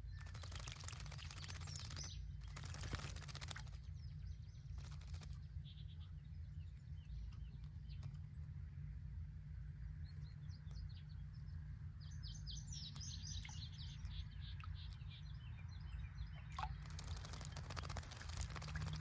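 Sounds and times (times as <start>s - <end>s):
small birds chirping: 0.0s - 19.0s
splashing in birdbath water: 0.1s - 4.0s, 4.8s - 5.4s, 13.2s - 15.2s, 16.2s - 19.0s.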